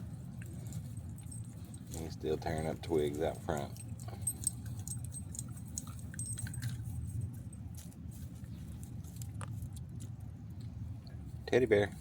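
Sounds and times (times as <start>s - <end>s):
puppy chewing twigs: 0.0s - 12.0s
steady low rumble: 0.0s - 12.0s.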